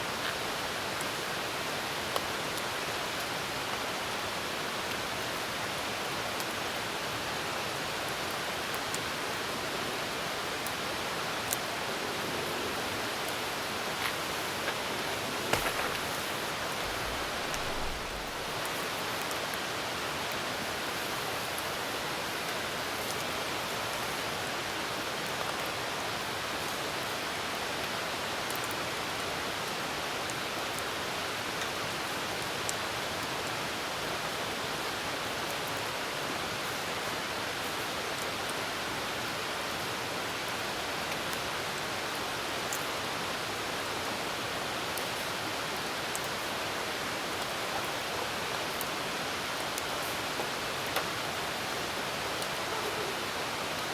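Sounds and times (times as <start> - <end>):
campfire crackling: 10.6 - 19.5, 49.7 - 53.9
rain hissing: 10.9 - 19.8, 49.3 - 53.9.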